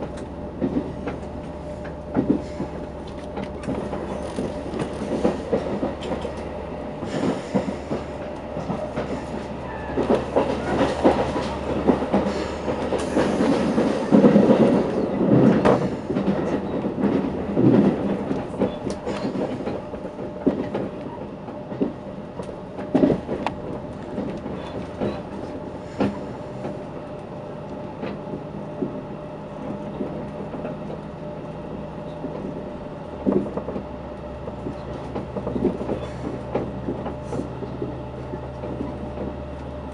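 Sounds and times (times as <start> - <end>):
train clacks and knocks: 0.0 - 39.9
train wheels rumbling on track: 0.0 - 39.9.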